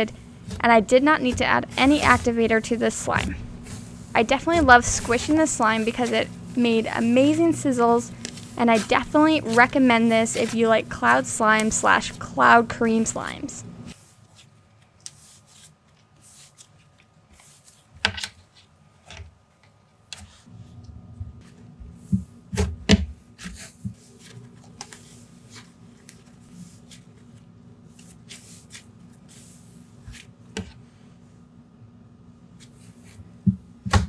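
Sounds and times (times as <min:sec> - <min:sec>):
slime squelches: 0:00.0 - 0:13.7.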